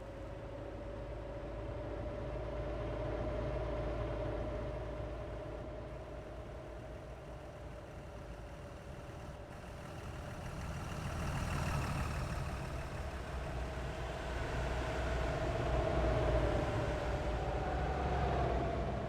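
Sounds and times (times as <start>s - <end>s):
truck engine rumble: 6.4s - 19.0s.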